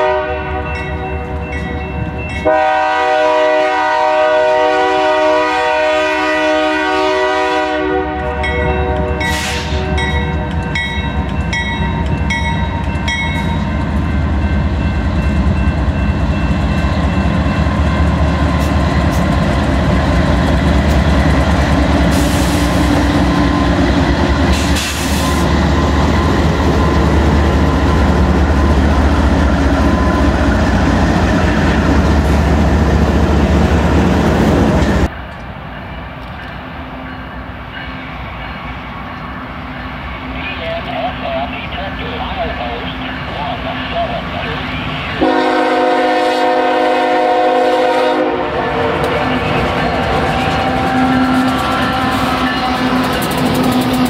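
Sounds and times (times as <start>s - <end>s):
train air horn: 0.0s - 0.8s, 2.4s - 10.0s, 45.2s - 53.2s
diesel locomotives rumbling: 0.0s - 54.0s
freight cars rolling past: 48.5s - 54.0s.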